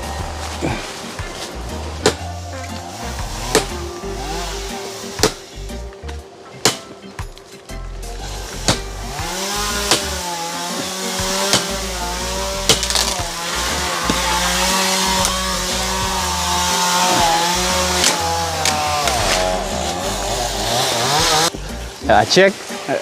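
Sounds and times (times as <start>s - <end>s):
chainsaw cutting wood: 0.0s - 5.8s, 8.1s - 21.6s
sharp knocks: 5.2s - 5.5s, 8.6s - 10.2s, 10.8s - 11.8s, 12.6s - 15.4s.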